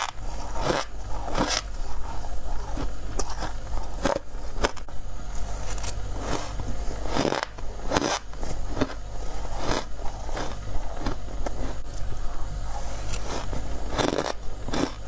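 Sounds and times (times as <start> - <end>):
crunching of ice being bitten: 5.7 - 11.8, 13.2 - 15.0.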